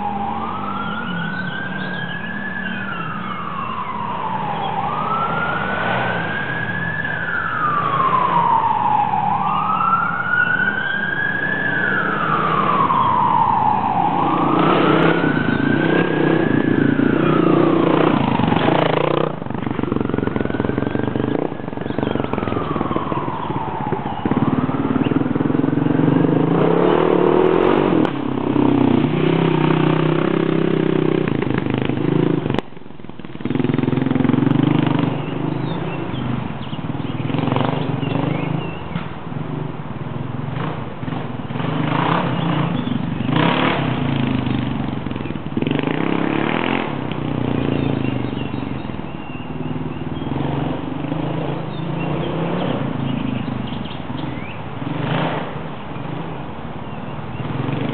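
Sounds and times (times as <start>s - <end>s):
wailing siren: 0.0s - 31.4s
dirt bike engines running: 0.0s - 39.2s, 40.2s - 56.2s.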